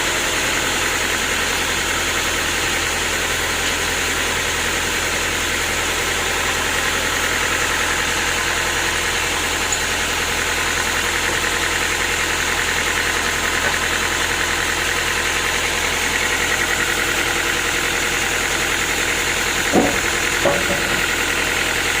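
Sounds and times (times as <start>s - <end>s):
sawmill machinery running: 0.0s - 22.0s
short knocks: 19.7s - 21.2s.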